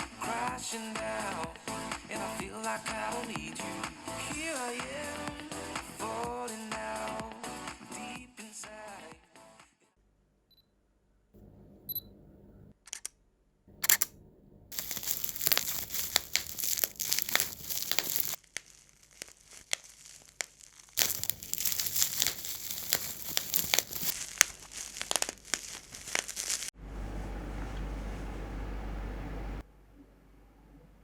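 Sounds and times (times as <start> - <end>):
sharp clicks: 12.8 - 13.2, 13.8 - 14.1
crinkling and rustling: 14.7 - 26.7.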